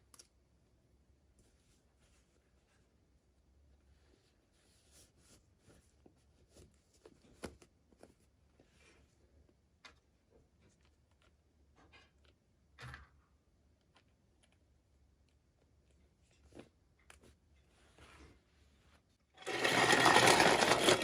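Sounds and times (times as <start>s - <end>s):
small objects clicking and rustling: 19.4s - 21.0s.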